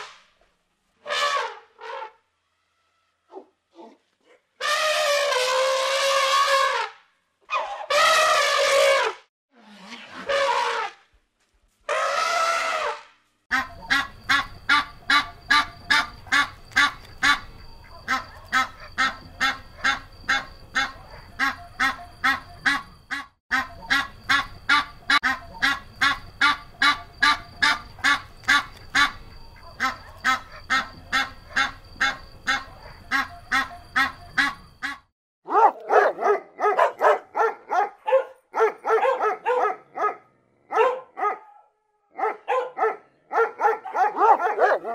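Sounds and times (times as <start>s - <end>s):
duck quacking: 13.5s - 35.1s
dogs barking: 17.8s - 22.6s, 29.6s - 34.0s, 35.5s - 44.9s.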